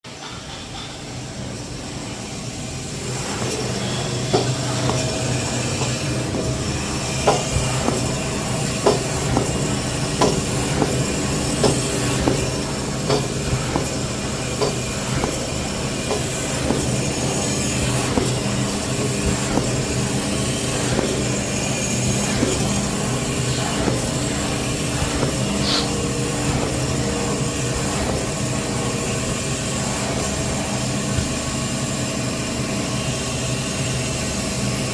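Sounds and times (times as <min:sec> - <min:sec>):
machine humming: 0:00.4 - 0:34.9.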